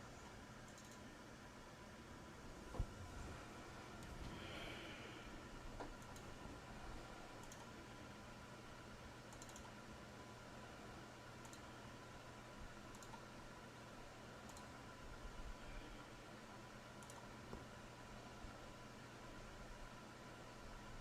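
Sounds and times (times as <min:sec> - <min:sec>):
low electrical hum: 0:00.0 - 0:21.0
keyboard and mouse clicks: 0:00.6 - 0:01.1, 0:05.8 - 0:06.3, 0:07.4 - 0:07.7, 0:09.3 - 0:09.8, 0:11.4 - 0:11.7, 0:12.9 - 0:13.3, 0:14.4 - 0:14.7, 0:17.0 - 0:17.3.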